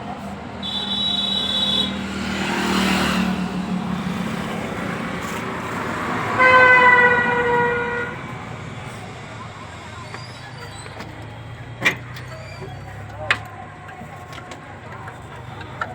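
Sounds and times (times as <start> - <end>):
loud steady horn blast: 0.6 - 3.0, 6.0 - 8.5
passing vehicle engine: 1.4 - 15.9.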